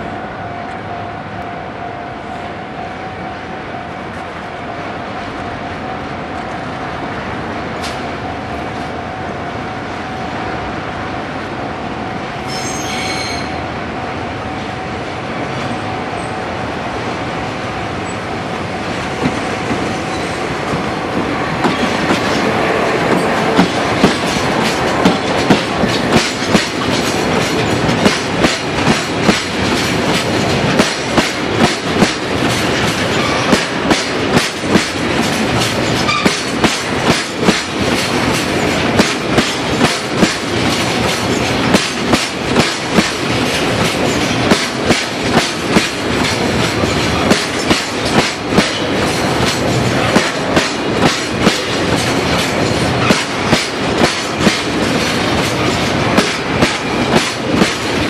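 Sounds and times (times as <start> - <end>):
diesel locomotive engine drone: 0.0 - 58.0
brief shrill tone: 12.4 - 13.6
wheels clacking over rail joints: 18.9 - 58.0.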